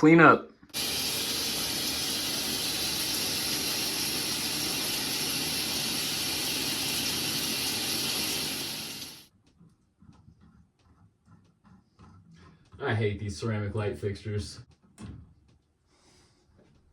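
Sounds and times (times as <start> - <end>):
shower water spraying: 0.7 - 9.3.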